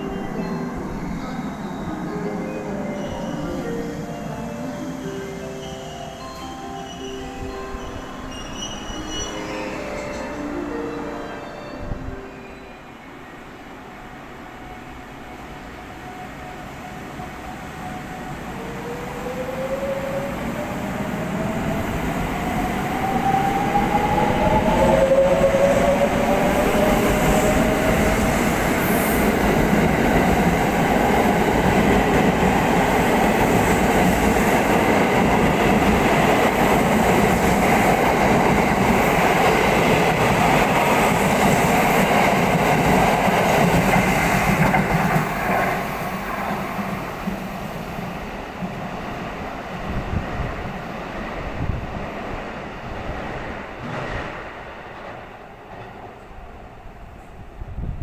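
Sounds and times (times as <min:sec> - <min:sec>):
train running: 0:00.0 - 0:58.0.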